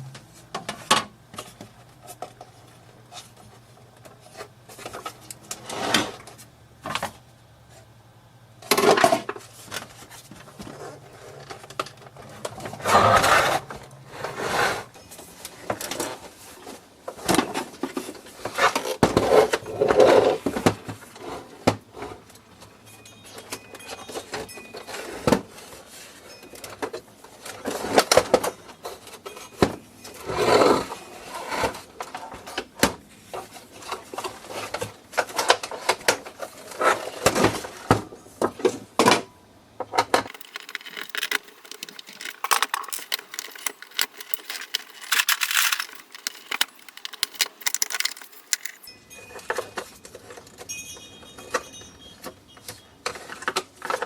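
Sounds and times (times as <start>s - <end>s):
clicks and clinks of hand tools: 40.3s - 48.9s.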